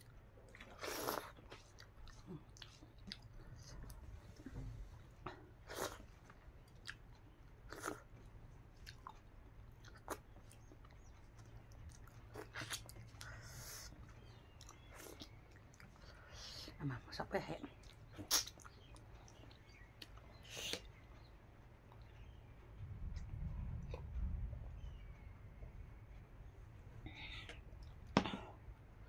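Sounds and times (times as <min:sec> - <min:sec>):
person chewing: 0:00.0 - 0:04.0, 0:05.6 - 0:16.2, 0:17.8 - 0:20.9.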